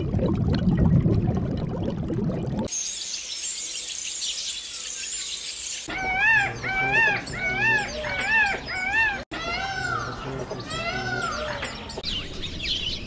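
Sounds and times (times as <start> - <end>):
high-pitched chirping: 5.8 - 12.2
rising and falling animal call: 5.9 - 11.8.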